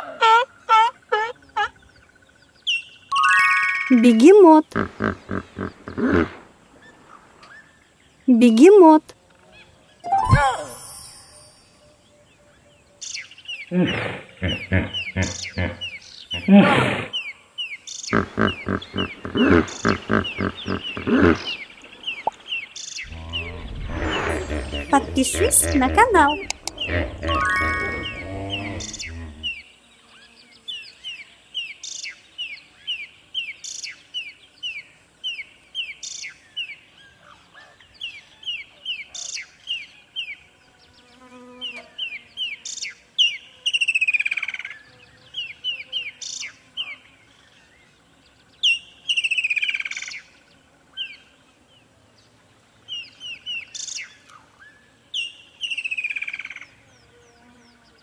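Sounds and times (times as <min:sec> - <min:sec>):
birds chirping: 0:01.5 - 0:07.6, 0:18.0 - 0:29.6
bird call sliding downward: 0:23.1 - 0:29.5.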